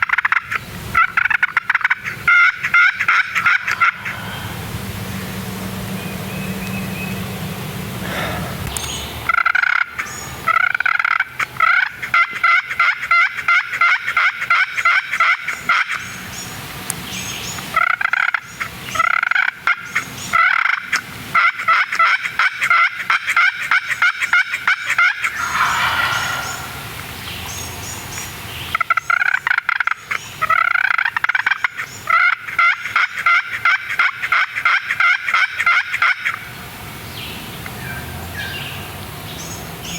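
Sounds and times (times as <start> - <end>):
turkey calling: 1.2 - 4.7, 25.3 - 27.2.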